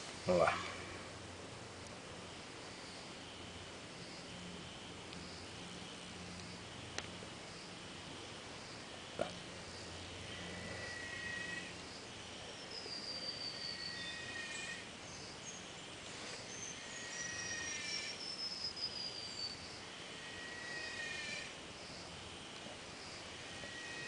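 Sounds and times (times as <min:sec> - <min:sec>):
steady background hiss: 0:00.0 - 0:24.0
high whistling animal calls: 0:10.3 - 0:11.8, 0:12.6 - 0:14.9, 0:16.5 - 0:21.6, 0:23.2 - 0:24.0.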